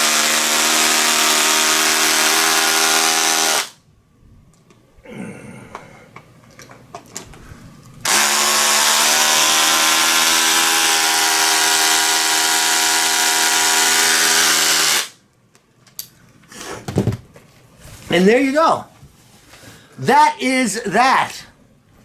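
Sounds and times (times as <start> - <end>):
power drill driving screw: 0.0 - 3.8, 8.1 - 15.1.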